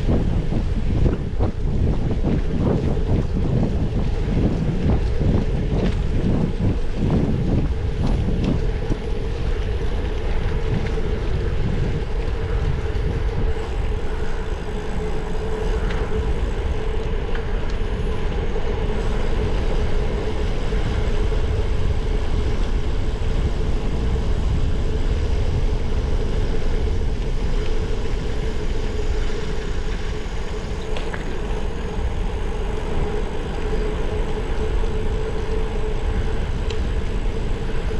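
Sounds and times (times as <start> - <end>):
steady low hum: 0.0 - 37.9
wind on microphone: 0.0 - 37.9.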